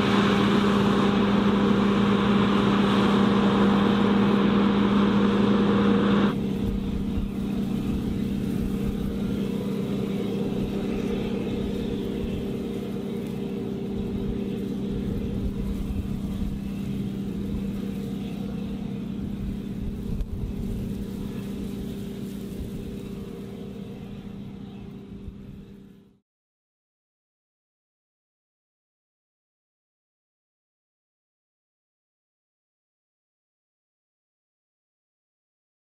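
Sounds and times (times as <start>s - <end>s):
farm machinery droning: 0.0s - 26.2s.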